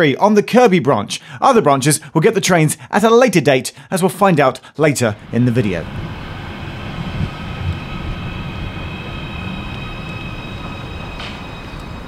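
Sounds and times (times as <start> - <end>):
electric train rumble: 5.1 - 12.0
high whine: 5.1 - 12.0.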